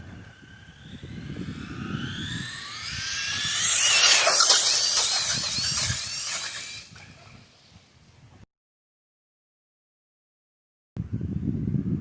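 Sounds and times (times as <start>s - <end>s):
electric motor whining: 0.0s - 7.5s.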